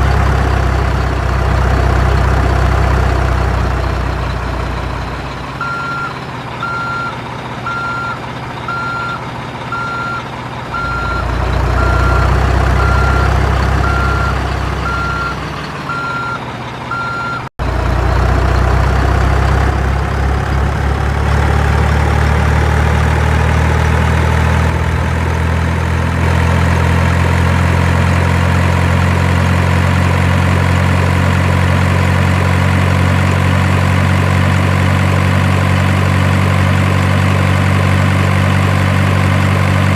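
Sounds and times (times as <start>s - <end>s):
truck engine running: 0.0s - 39.9s
truck reversing alarm beeping: 2.0s - 17.5s.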